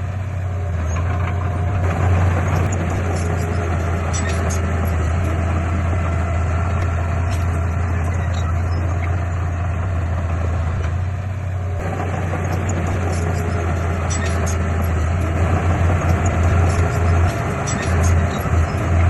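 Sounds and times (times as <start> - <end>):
heavy diesel engine droning: 0.0 - 19.0.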